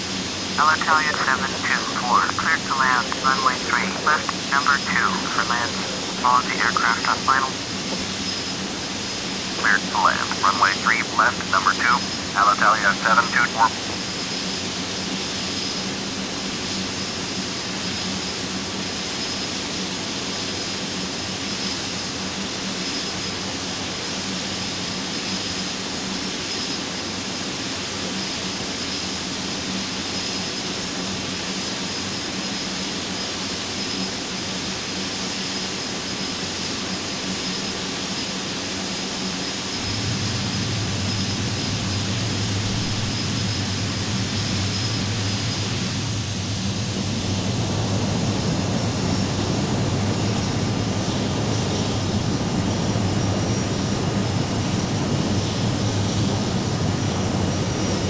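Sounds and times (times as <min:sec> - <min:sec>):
faint high whine: 0:00.0 - 0:18.4, 0:33.8 - 0:58.0
jet airliner in flight: 0:00.0 - 0:58.0
deeper hum: 0:39.8 - 0:56.9.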